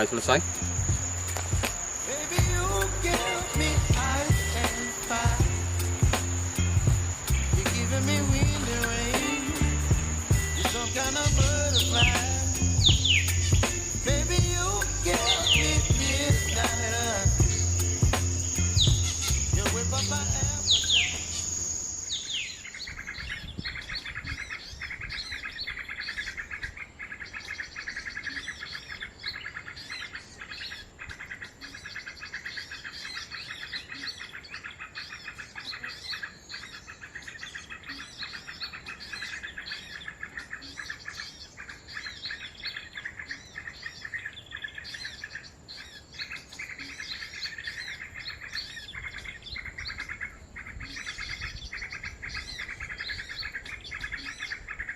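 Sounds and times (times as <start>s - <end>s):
thin steady high tone: 0.0s - 22.2s
small songbirds chirping: 0.0s - 54.9s.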